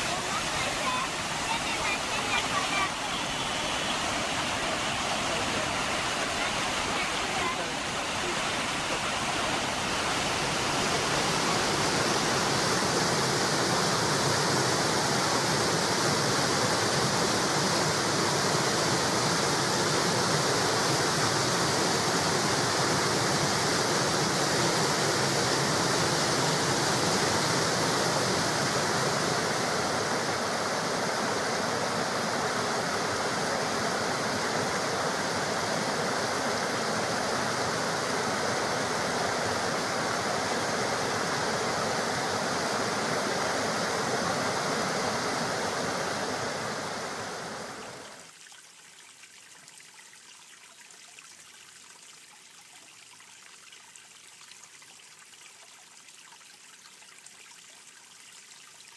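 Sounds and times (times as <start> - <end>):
flowing water rushing: 0.0 - 58.9.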